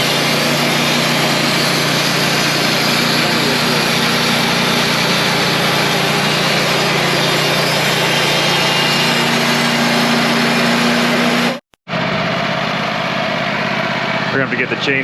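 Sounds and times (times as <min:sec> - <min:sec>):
band blade sawing log: 0:00.0 - 0:11.6
sawmill engine droning: 0:00.0 - 0:15.0.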